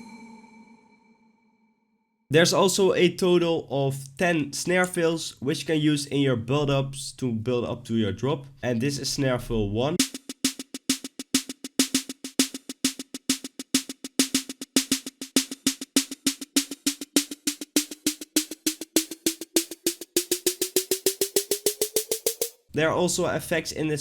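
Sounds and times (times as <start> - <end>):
snare drum roll: 10.0 - 22.6.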